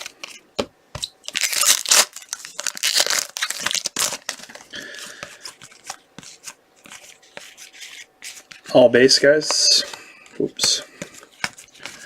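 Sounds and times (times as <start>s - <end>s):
cards rustling: 1.0s - 12.0s
foil wrapper tearing and crinkling: 1.2s - 4.6s.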